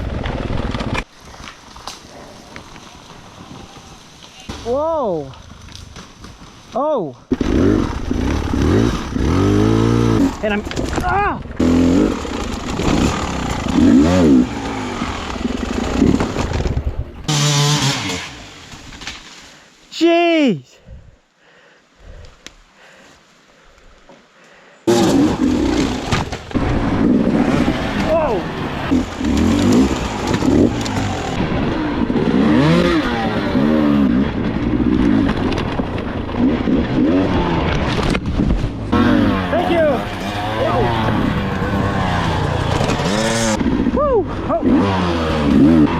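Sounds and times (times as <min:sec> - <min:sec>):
dirt bike engine revving: 0:07.3 - 0:10.6, 0:11.6 - 0:18.7, 0:24.9 - 0:35.5, 0:36.2 - 0:38.1, 0:38.7 - 0:45.9.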